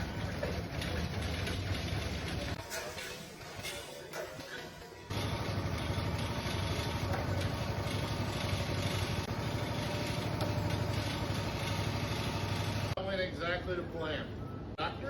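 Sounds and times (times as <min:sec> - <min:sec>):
small engine idling: 0:05.1 - 0:13.0.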